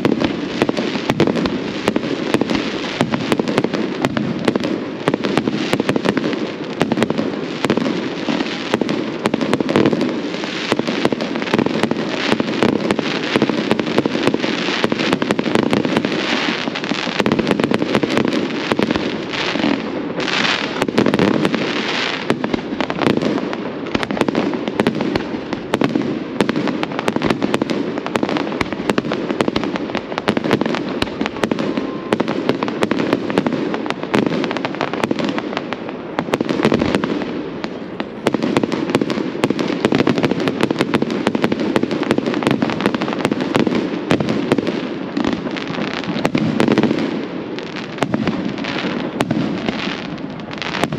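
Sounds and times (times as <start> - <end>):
fireworks bangs and crackles: 0.0 - 50.9.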